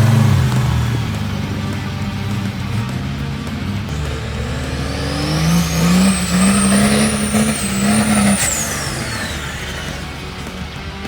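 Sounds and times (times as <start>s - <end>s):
diesel engine revving hard: 0.0s - 11.0s
turbo whistle: 3.9s - 10.6s.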